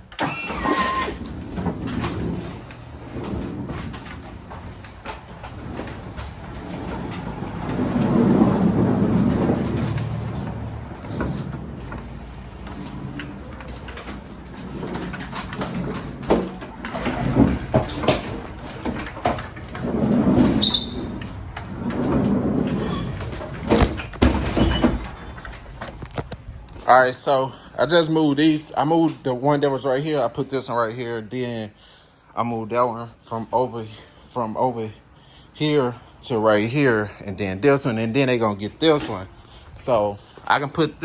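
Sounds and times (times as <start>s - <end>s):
pallet jack rolling: 0.0s - 26.8s
knocks and clunks: 0.1s - 26.9s
brief squeak: 0.2s - 1.2s, 20.6s - 21.1s.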